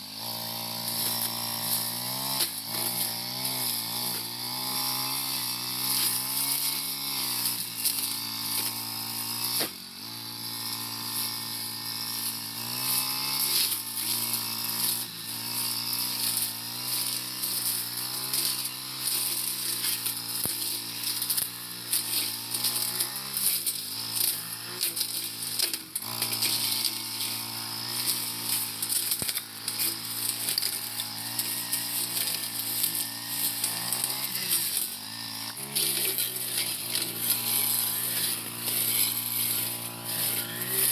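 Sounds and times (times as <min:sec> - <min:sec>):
brush cutter engine running: 0:00.0 - 0:40.9
crackle of cut stems: 0:17.5 - 0:40.9.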